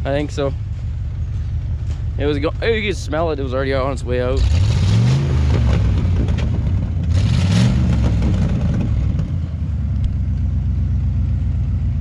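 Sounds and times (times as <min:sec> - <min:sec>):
truck engine revving: 0:01.2 - 0:10.8.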